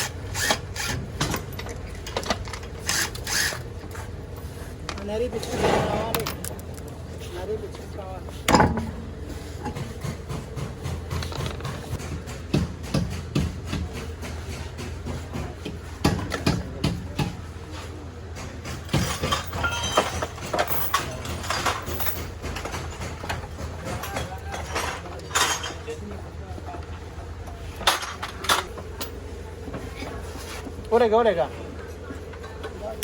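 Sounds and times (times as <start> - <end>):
metal tools clinking and knocking: 0.4 - 3.9, 4.9 - 7.2, 18.7 - 26.2, 27.8 - 29.3.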